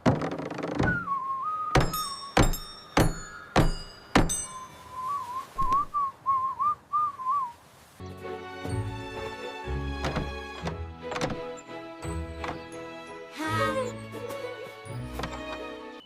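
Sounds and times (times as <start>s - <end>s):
person whistling a tune: 0.9s - 2.4s, 4.6s - 7.5s
sharp ringing knocks: 1.7s - 4.7s.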